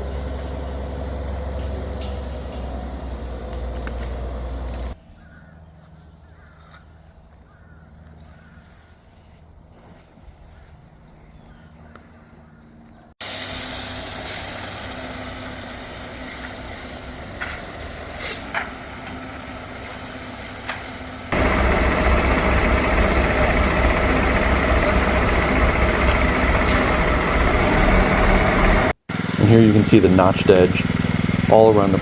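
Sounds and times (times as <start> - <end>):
truck diesel engine running: 0.0 - 5.0, 13.2 - 32.0.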